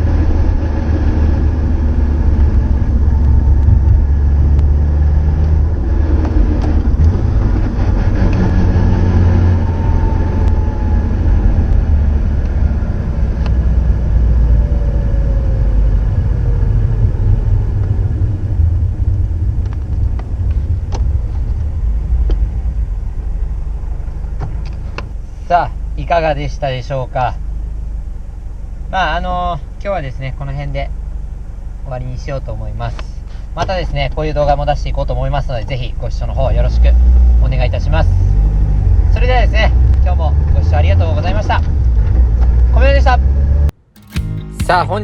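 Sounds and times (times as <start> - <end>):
car exhaust low rumble: 0.0 - 45.0.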